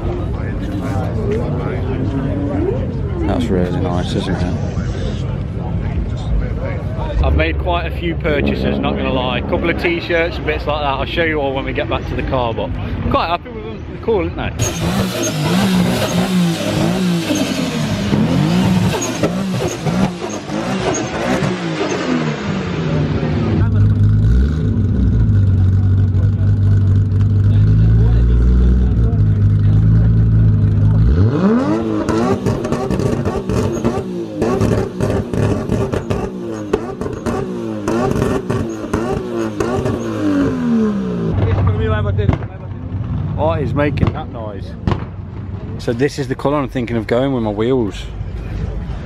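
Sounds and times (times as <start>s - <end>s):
car engine revving: 6.7s - 11.8s, 14.5s - 45.6s
dense background din: 27.0s - 49.0s.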